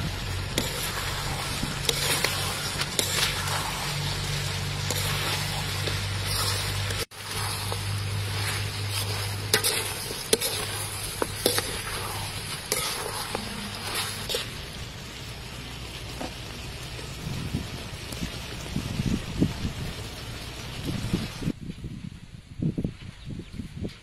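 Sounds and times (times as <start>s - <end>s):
chicken wings sizzling in a wok: 0.0s - 21.6s
metal spatula scraping a pan: 0.5s - 14.6s.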